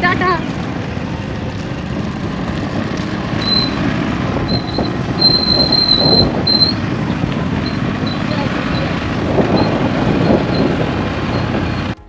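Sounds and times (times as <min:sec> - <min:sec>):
small motorcycle rumble: 0:00.0 - 0:12.0
wind and road noise: 0:00.0 - 0:12.0
thin high squeal: 0:03.4 - 0:03.9, 0:04.5 - 0:06.8.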